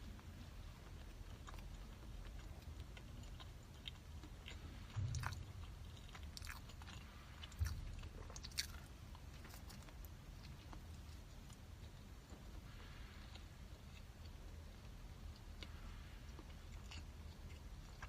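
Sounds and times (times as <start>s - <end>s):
close chewing and biting: 0.0s - 18.0s
soft low thumps: 4.8s - 6.8s, 7.5s - 8.4s.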